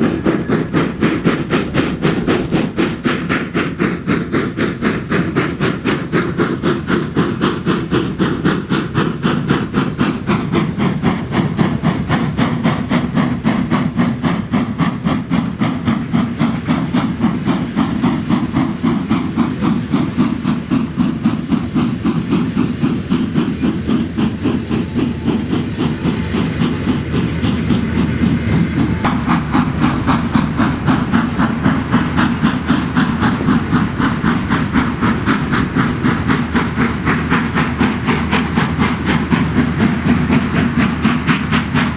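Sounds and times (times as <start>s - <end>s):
steam hissing: 0.0s - 41.9s
steam locomotive exhaust beating: 0.0s - 41.9s.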